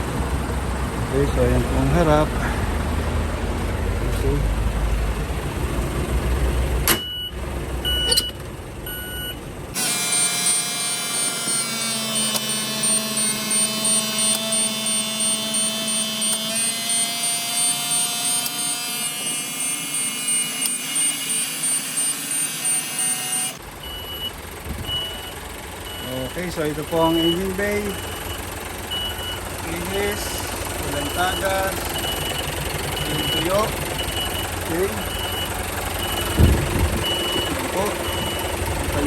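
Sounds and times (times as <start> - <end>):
truck warning beeper: 6.9 - 18.6, 19.2 - 39.0
pulsing mechanical whine: 9.7 - 39.0.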